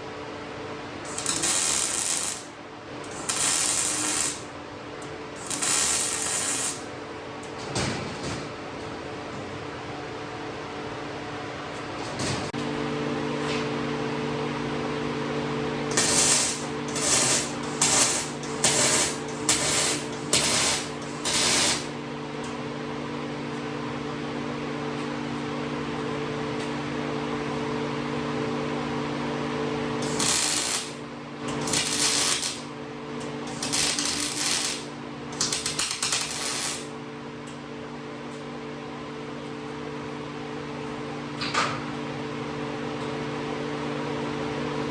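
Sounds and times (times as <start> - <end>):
steady machine hum: 0.0 - 7.6, 8.5 - 44.9
welding arc crackle: 1.1 - 4.5, 5.3 - 6.9, 15.9 - 21.9, 30.0 - 32.7, 33.5 - 36.9.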